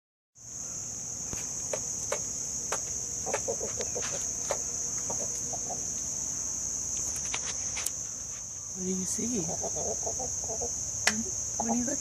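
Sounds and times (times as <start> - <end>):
insects trilling: 0.4 - 12.0
chicken clucking: 2.1 - 5.9, 9.4 - 10.8.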